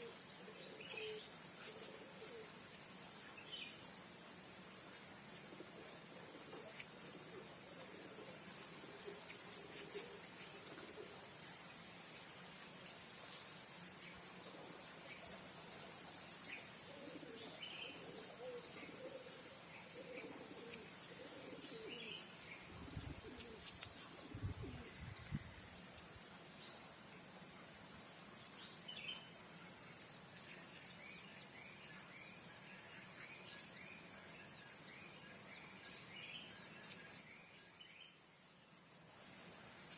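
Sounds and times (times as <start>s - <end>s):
faint bird chirps: 0.0s - 2.5s
insects trilling: 0.0s - 39.9s.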